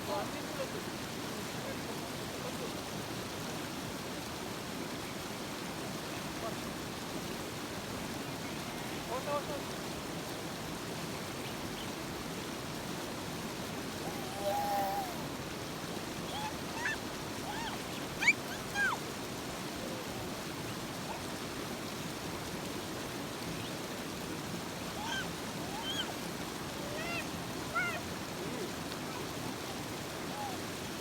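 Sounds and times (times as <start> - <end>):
river water rushing: 0.0 - 31.0
short high calls: 14.0 - 15.3, 16.3 - 19.0, 25.0 - 26.1.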